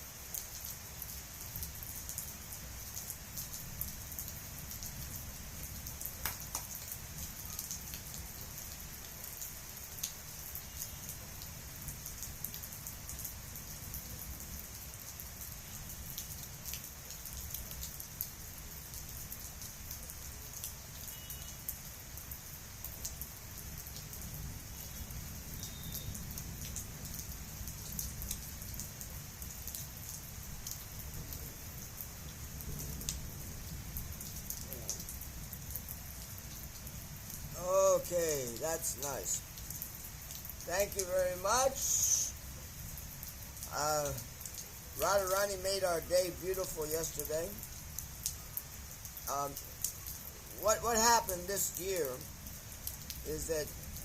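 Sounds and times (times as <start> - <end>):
raindrops ticking on surfaces: 0.0 - 54.0
heavy rain hissing: 23.5 - 54.0.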